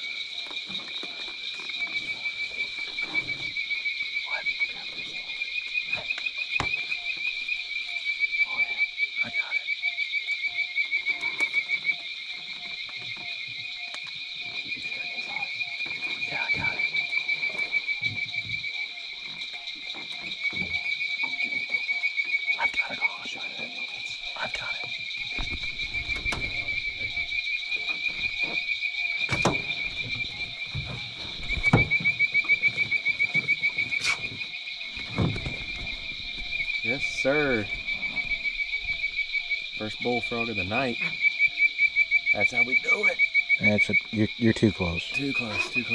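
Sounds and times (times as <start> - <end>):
frogs calling: 0.0 - 45.9
insects trilling: 0.0 - 45.9
knocks and rustles in boat: 15.8 - 22.3, 25.3 - 36.8
lower short frog call: 36.6 - 45.9.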